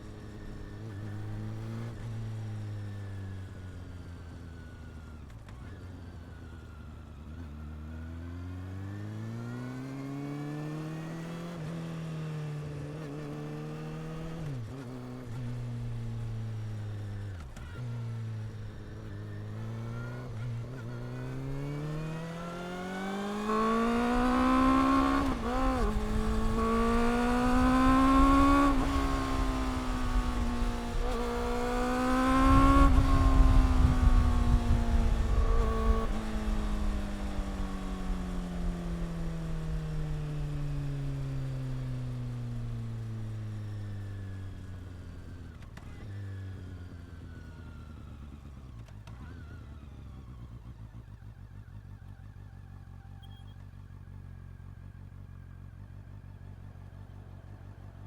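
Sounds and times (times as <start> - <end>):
motorcycle engine accelerating: 0.0 - 58.0
wind rumble on microphone: 25.2 - 39.2.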